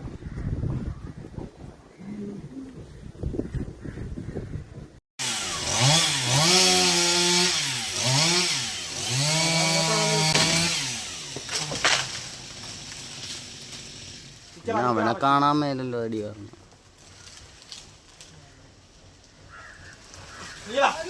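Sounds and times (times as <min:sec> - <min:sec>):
chainsaw cutting wood: 0:05.2 - 0:14.6.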